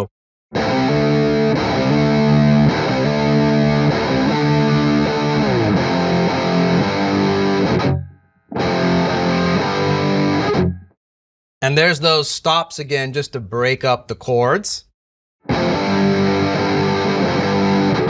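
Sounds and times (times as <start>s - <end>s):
distorted electric guitar chords: 0.0s - 11.0s, 15.5s - 18.0s.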